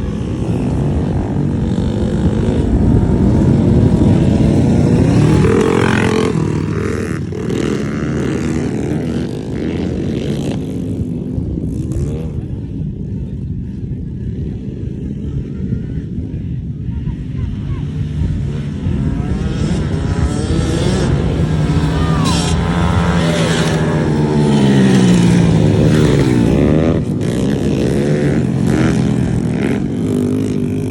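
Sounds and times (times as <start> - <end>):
small motorbike engine revving: 19.1 - 30.9.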